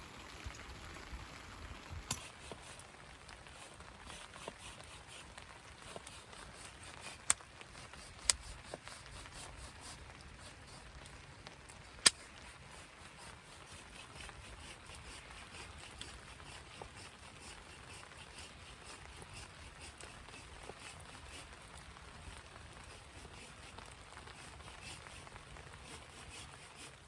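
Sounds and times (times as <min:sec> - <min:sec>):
campfire crackling faintly: 0:00.0 - 0:27.0
sharp pops from fire: 0:11.7 - 0:12.5.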